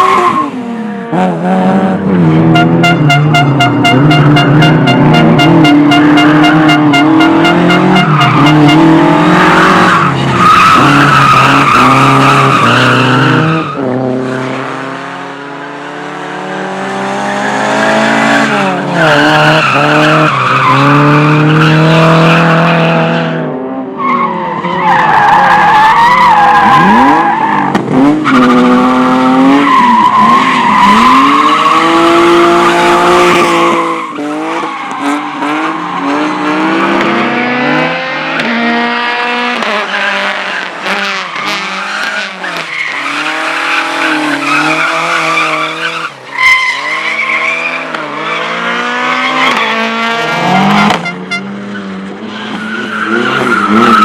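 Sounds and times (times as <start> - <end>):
car engine revving: 0.0 - 23.3, 25.1 - 54.0
tyres squealing: 42.0 - 47.9.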